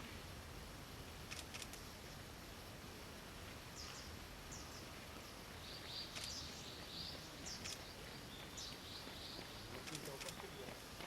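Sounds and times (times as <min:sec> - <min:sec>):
outdoor background noise: 0:00.0 - 0:11.0
faint sharp clicks: 0:01.3 - 0:01.9, 0:06.1 - 0:06.4, 0:07.5 - 0:07.9, 0:09.8 - 0:10.5.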